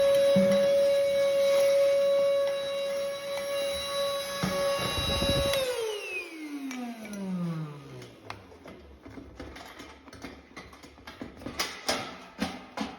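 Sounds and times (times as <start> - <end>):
vacuum cleaner motor winding down: 0.0 - 8.5.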